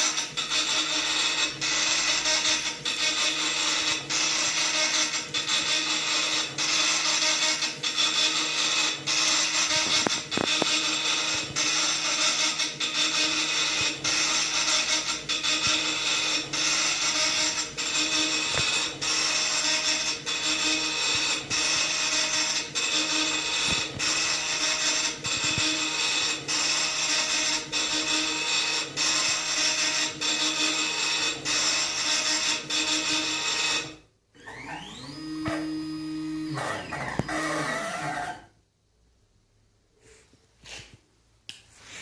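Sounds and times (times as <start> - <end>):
engraving machine buzzing and ticking: 0.0 - 34.0
drive motors whining: 34.4 - 38.3.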